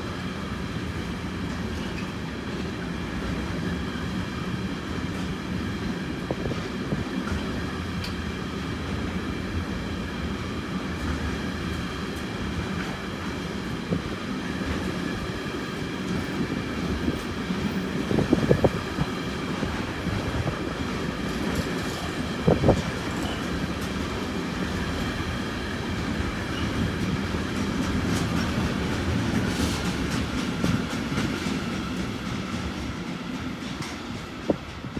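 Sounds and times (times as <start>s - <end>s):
train rumble on rails: 0.0s - 34.9s.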